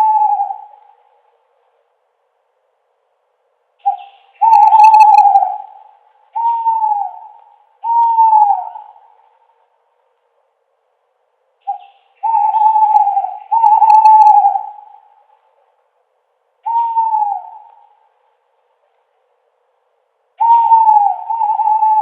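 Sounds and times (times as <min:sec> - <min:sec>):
owl hooting: 0:00.0 - 0:01.3, 0:03.8 - 0:09.6, 0:11.6 - 0:15.6, 0:16.6 - 0:18.2, 0:20.4 - 0:22.0.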